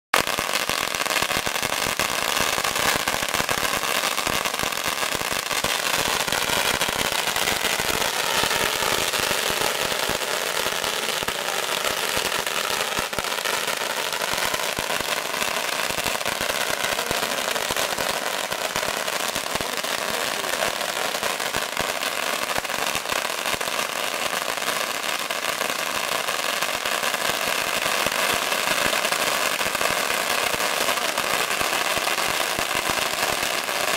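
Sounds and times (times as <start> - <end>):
firecrackers popping rapidly: 0.1 - 33.9.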